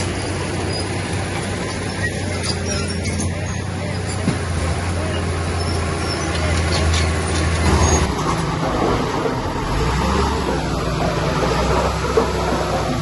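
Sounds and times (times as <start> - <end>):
heavy diesel engine running: 0.0 - 13.0.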